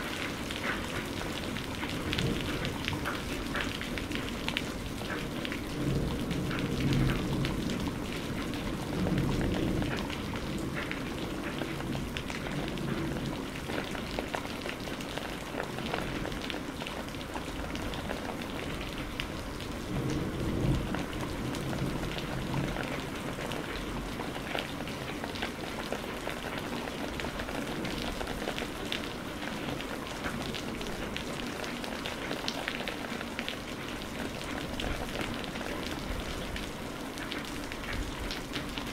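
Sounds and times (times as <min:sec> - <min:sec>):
rain pattering: 0:00.0 - 0:38.9
low thunder rumbles: 0:18.9 - 0:23.3.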